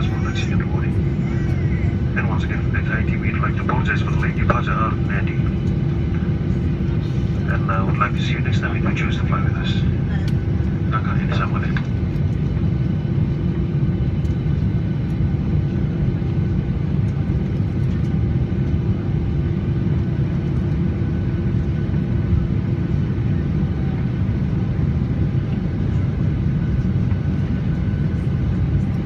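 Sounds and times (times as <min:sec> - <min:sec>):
jet airliner cabin rumble: 0:00.0 - 0:29.0.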